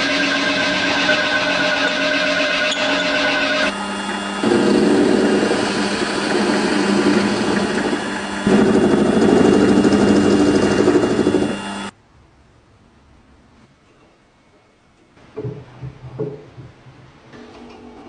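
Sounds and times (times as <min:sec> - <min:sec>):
small motor running: 0:00.0 - 0:11.9.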